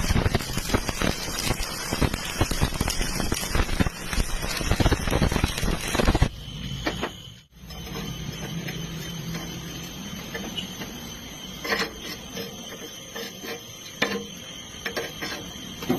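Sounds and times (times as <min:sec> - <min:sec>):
welding arc crackling: 0:00.0 - 0:06.8.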